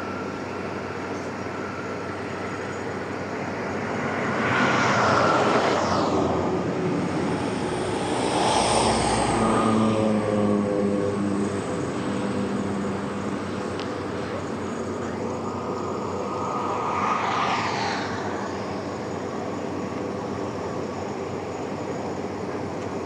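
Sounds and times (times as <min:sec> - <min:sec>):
rushing noise: 0:03.1 - 0:20.2.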